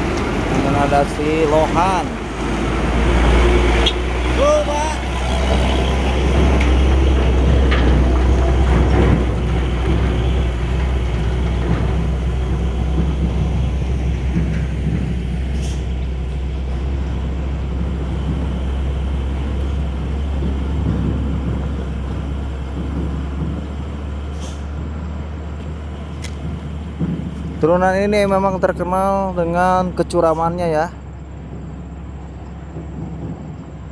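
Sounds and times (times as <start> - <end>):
diesel truck engine rumbling: 0.0 - 33.9
brief hisses: 24.3 - 24.7.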